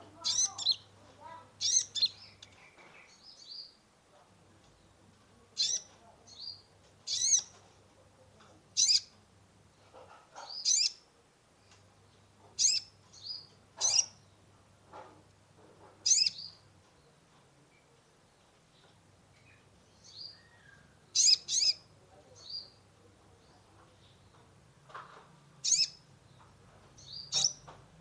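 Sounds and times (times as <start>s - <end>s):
sunbird chirping calls: 0.2s - 3.8s, 5.6s - 7.6s, 10.5s - 11.0s, 12.6s - 14.2s, 16.0s - 16.6s, 19.4s - 22.8s, 25.6s - 26.0s, 27.0s - 27.7s.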